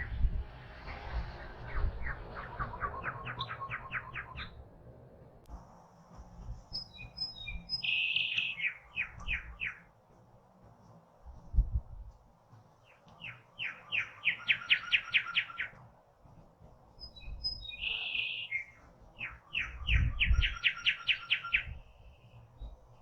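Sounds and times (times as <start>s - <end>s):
songbird singing: 0.0s - 4.8s, 6.4s - 10.3s, 12.5s - 23.0s
harsh bird call: 17.5s - 21.7s.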